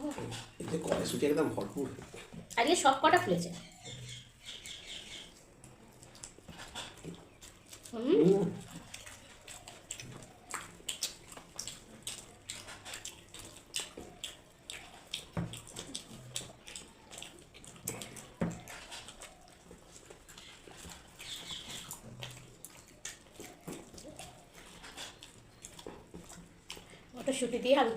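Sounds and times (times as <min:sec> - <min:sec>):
people chewing: 0:00.0 - 0:27.9
wet mouth smacks and clicks: 0:08.6 - 0:26.9.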